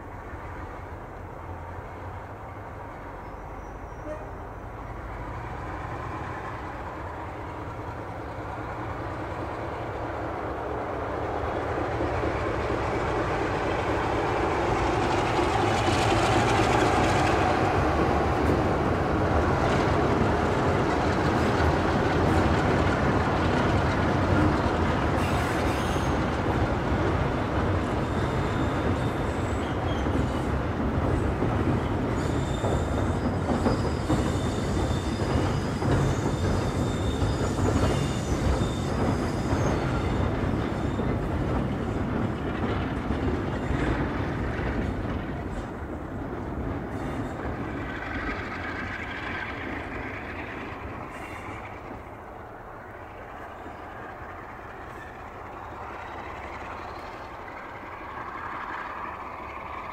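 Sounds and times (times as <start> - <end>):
passenger train rumbling past: 0.0 - 59.9
faint high wheel squeals: 2.9 - 5.1, 25.2 - 26.4, 27.8 - 30.6, 31.2 - 42.0, 46.9 - 52.1, 52.9 - 59.9.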